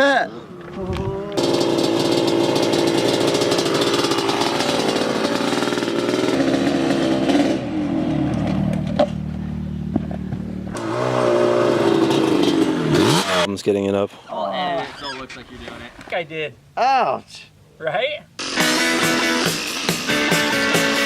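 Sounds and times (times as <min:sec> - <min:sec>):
dirt bike engine running: 0:01.0 - 0:13.5.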